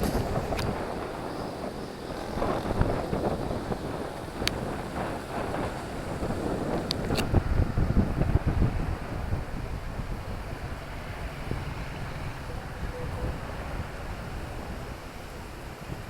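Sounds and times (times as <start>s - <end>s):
distant traffic: 0.0s - 16.0s
wind buffeting microphone: 0.0s - 16.0s
faint far-off voices: 7.8s - 16.0s.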